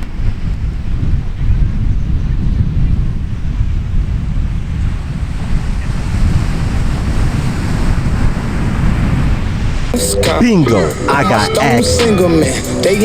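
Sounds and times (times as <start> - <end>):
wind buffeting microphone: 0.0 - 10.3
ocean surf washing on beach: 3.0 - 10.0.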